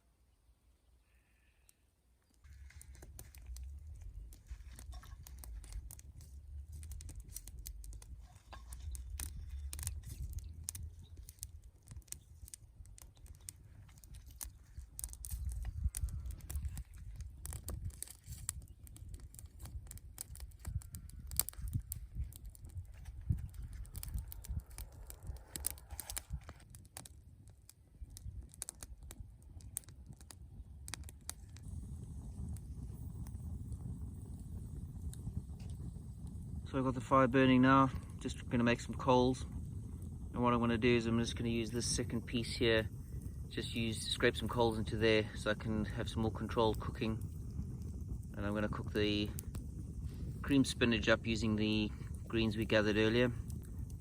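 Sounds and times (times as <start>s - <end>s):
campfire crackling and popping: 1.6s - 54.0s
low rumble: 2.5s - 12.1s, 19.3s - 26.6s.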